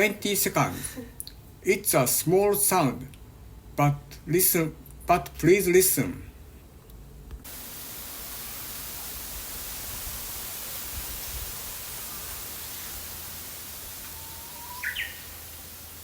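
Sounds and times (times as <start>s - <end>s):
steady field recording hiss: 0.0s - 16.0s
bush warbler song: 14.0s - 15.9s.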